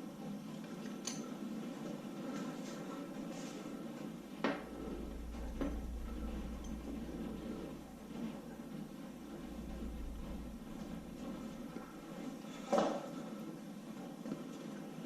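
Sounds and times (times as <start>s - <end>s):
background hiss: 3.2s - 13.4s
low hum: 3.7s - 13.1s.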